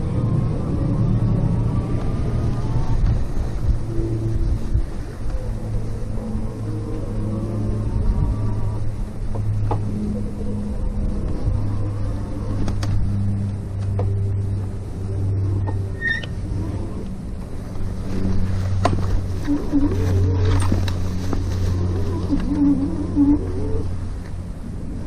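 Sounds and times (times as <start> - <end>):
electric bike motor and tyres humming: 0.0 - 25.0
brief squeak: 15.6 - 16.4.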